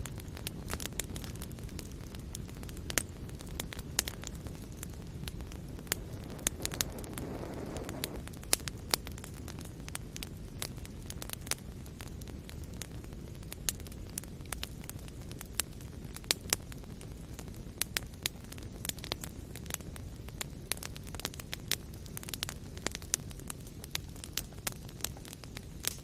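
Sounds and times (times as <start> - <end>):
fire crackling and popping: 0.0 - 26.0.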